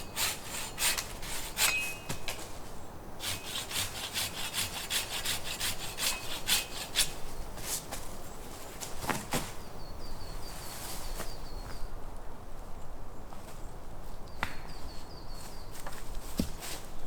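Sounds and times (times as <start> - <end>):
hand saw cutting wood: 0.0 - 2.6, 3.2 - 7.4.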